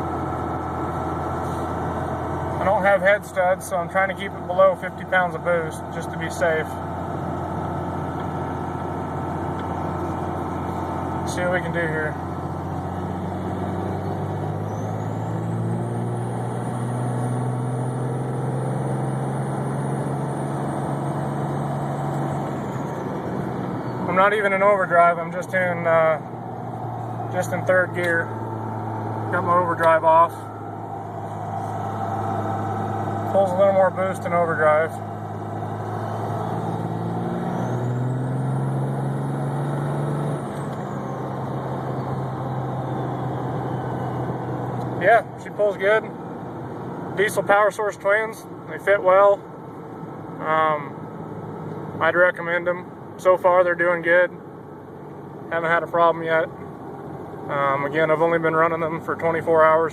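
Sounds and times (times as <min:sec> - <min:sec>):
turbocharger whine: 0:00.0 - 0:47.4
diesel engine accelerating: 0:00.0 - 0:59.9.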